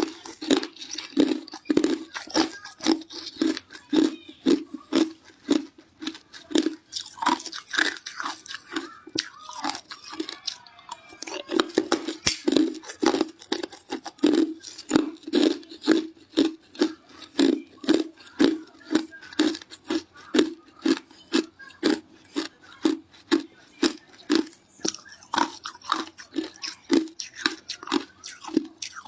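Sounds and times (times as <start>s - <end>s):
ice being chewed: 0.0s - 29.0s.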